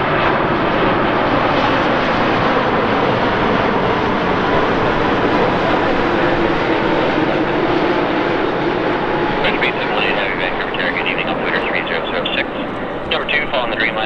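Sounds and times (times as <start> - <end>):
faint jet engine whine: 0.0 - 14.0
jet engines roaring: 0.0 - 14.0.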